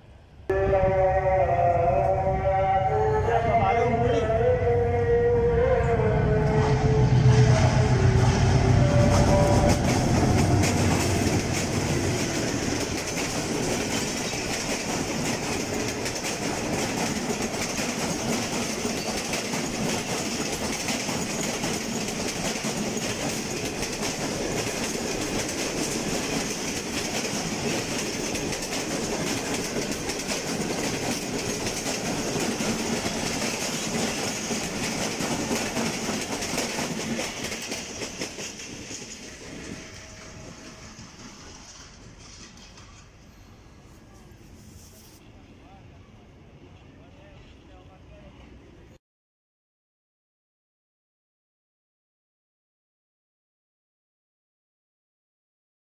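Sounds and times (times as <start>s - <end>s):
diesel locomotive engine passing: 0.0s - 49.0s
train wheels clickety-clack: 9.0s - 43.6s.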